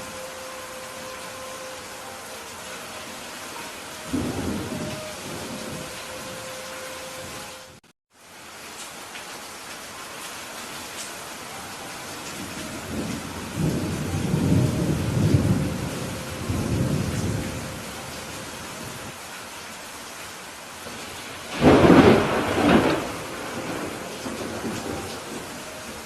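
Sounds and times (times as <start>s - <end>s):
steady rain: 0.0s - 26.0s
low rolling thunder rumble: 4.1s - 6.5s, 12.4s - 19.1s, 20.9s - 26.0s
sharp thunderclap: 21.5s - 25.2s.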